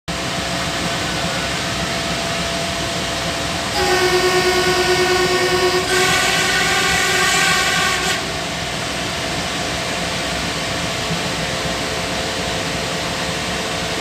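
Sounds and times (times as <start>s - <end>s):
rail vehicle running: 0.1s - 14.0s
multi-tone train horn: 3.7s - 9.0s.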